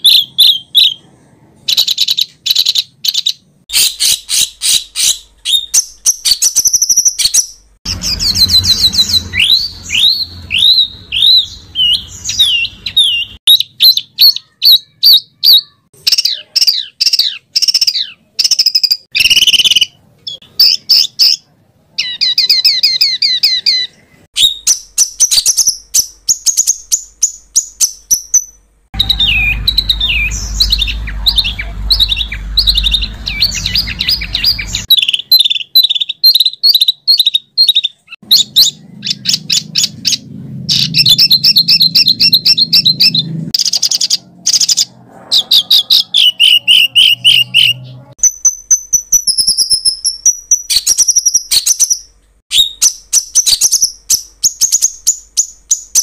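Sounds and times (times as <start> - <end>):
songbird trills and calls: 22.0 - 56.0.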